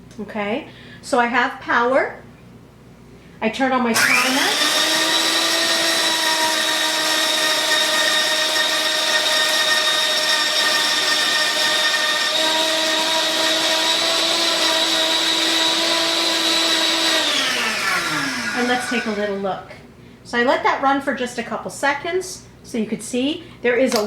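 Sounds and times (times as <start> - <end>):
grain mill motor whine: 4.0 - 19.6.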